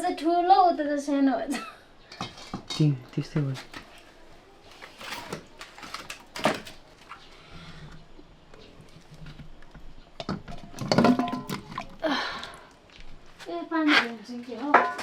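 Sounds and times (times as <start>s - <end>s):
kitchen utensils and dishes clicking: 10.2s - 11.9s.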